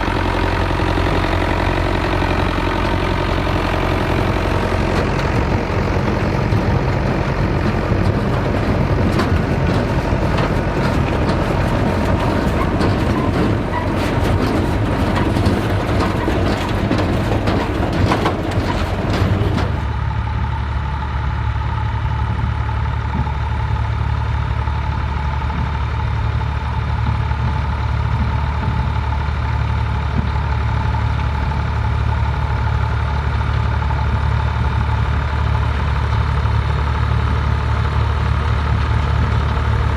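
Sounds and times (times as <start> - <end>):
tractor engine running: 0.0 - 39.9
machinery clicking and knocking: 0.1 - 20.2.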